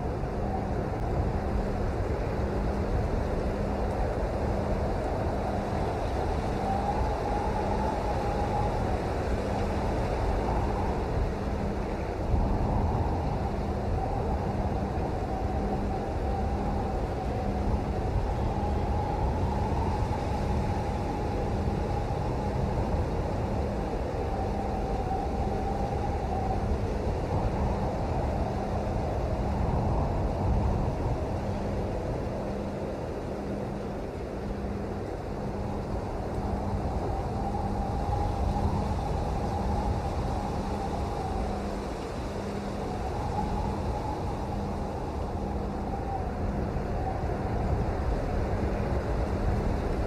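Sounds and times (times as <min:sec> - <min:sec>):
faint wavering whine: 0:00.0 - 0:50.0
steady rain: 0:00.0 - 0:50.0.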